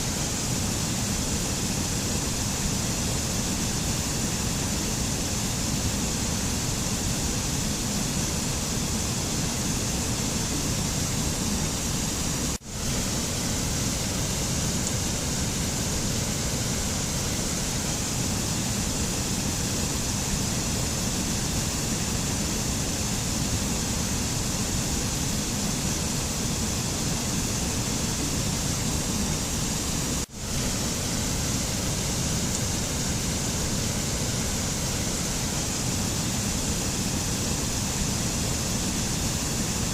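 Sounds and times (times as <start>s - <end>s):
mountain nature ambience rushing: 0.0s - 39.9s.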